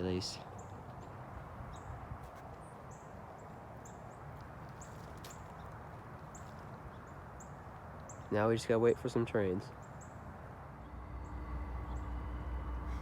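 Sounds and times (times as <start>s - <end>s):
small birds chirping: 0.0s - 12.2s
low outdoor rumble: 7.6s - 13.0s.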